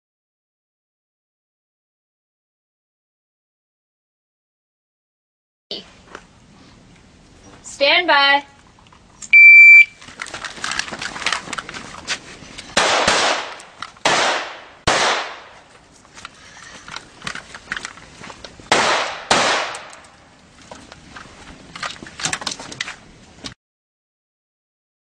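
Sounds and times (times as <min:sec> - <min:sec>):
pistol shots with echo: 0:12.8 - 0:15.6, 0:18.7 - 0:20.0
faint sharp cracks and clicks: 0:17.0 - 0:20.2.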